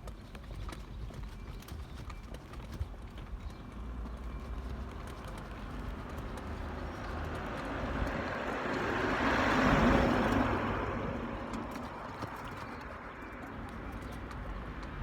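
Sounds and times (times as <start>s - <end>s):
road vehicle passing by: 3.4s - 15.0s.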